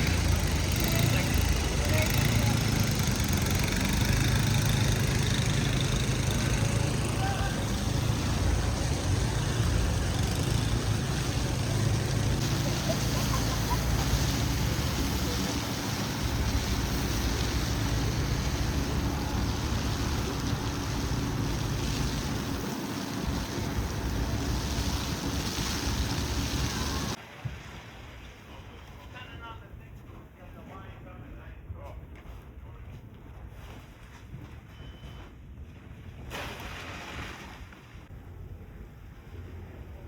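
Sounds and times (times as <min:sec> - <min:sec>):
distant city traffic rumble: 0:00.0 - 0:27.2.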